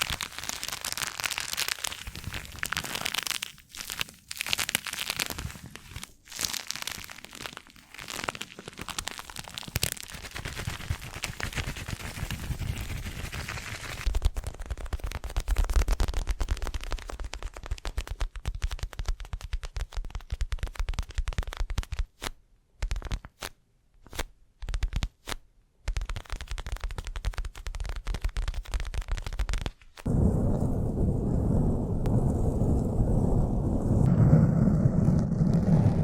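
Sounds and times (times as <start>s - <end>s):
fast tapping and scratching: 9.7s - 22.1s, 25.9s - 30.1s
low rustling: 30.1s - 36.0s.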